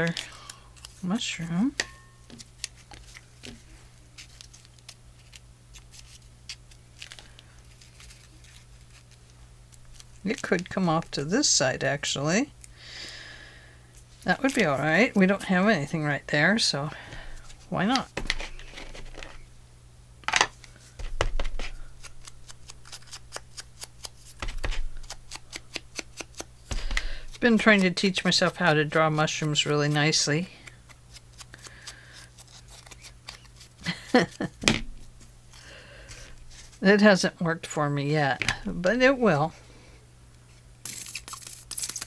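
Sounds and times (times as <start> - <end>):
faint steady hum: 0.0 - 42.0
paper rustling: 2.3 - 10.7, 17.2 - 19.4, 20.6 - 30.2, 35.5 - 36.8
paper rustling and tapping: 17.9 - 19.4, 21.0 - 21.8, 24.4 - 27.8
scissors snipping paper: 21.4 - 34.6.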